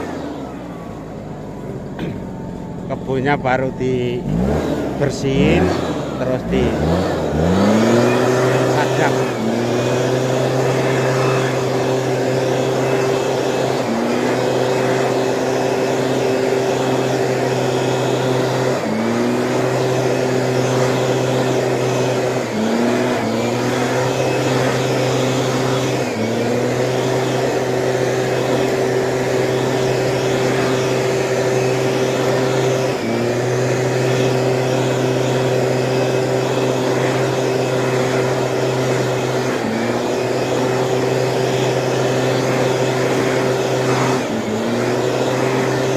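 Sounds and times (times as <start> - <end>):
two-stroke sprayer engine running: 0.0 - 45.9.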